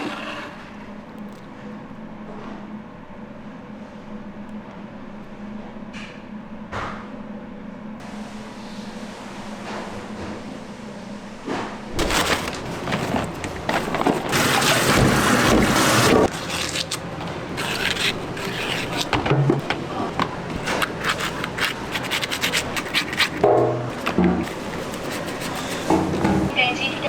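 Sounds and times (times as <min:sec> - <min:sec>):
kitchen scraping and rubbing: 0:12.0 - 0:26.5.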